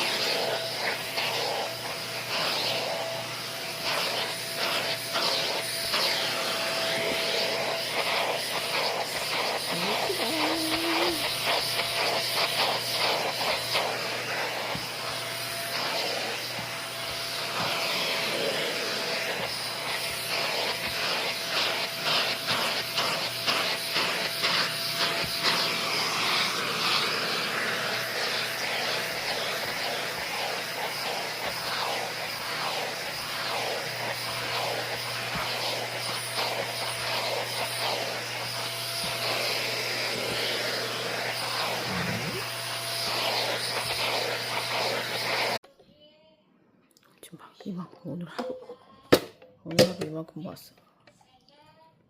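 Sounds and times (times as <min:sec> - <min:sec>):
brush strokes through dog fur: 0:03.8 - 0:16.7, 0:17.3 - 0:45.6.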